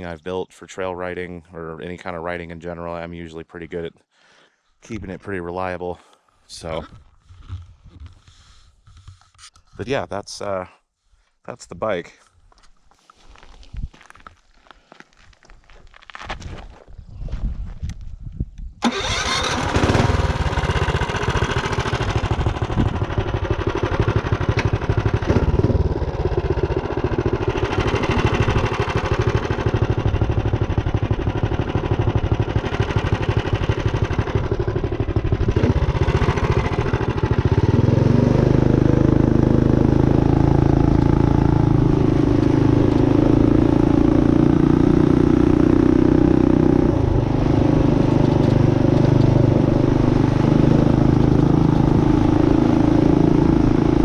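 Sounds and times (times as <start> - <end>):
minibike engine running: 18.8 - 54.0.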